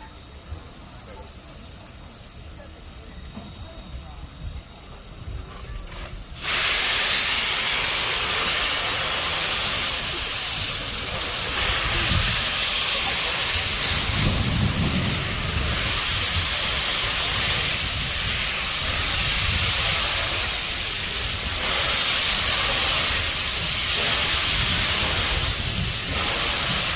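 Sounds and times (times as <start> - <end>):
locomotive steam hissing: 0.0 - 26.9.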